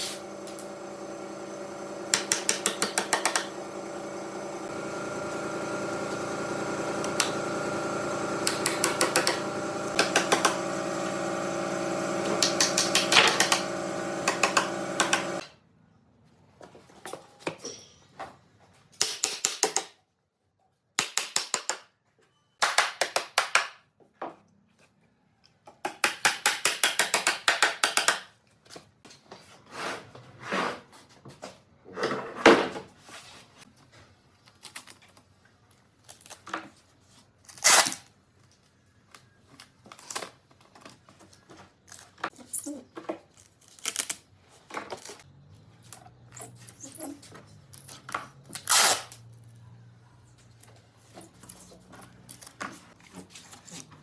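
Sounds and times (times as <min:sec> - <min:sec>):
steady machine hum: 0:00.0 - 0:15.4.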